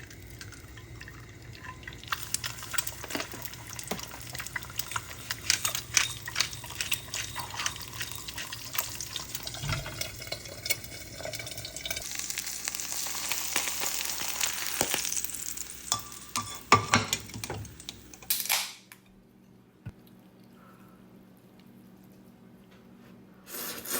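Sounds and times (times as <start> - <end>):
utensils and dishes clicking: 2.1 - 12.0, 15.8 - 18.6.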